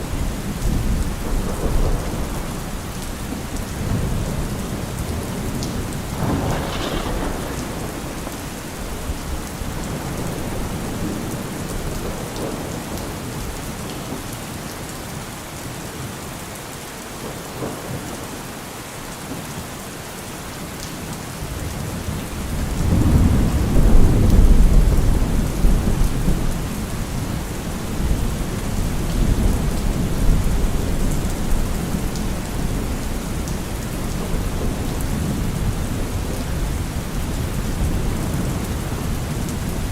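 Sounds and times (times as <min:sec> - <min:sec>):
steady rain falling: 0:00.0 - 0:39.9
low roll of thunder: 0:00.2 - 0:13.5, 0:22.4 - 0:39.9.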